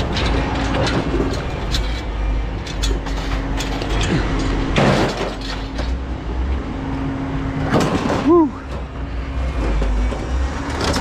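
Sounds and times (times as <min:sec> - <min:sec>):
scrap metal clanking: 0:00.0 - 0:06.0
engine running: 0:00.0 - 0:11.0
loud metal crash: 0:03.1 - 0:05.8, 0:07.7 - 0:08.5.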